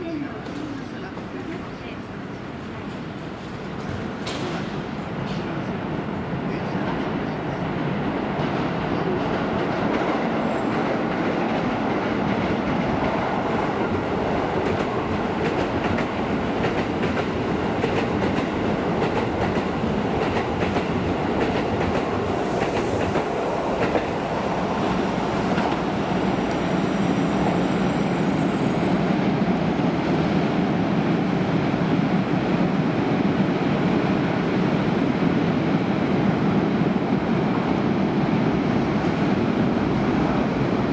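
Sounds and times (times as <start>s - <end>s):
train wheels clattering over rail joints: 3.4s - 5.4s.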